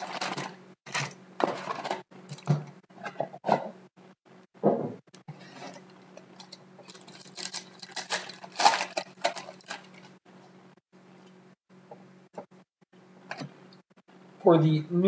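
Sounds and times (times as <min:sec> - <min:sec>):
card pack crinkling and rustling: 0:00.0 - 0:02.0, 0:06.3 - 0:10.2.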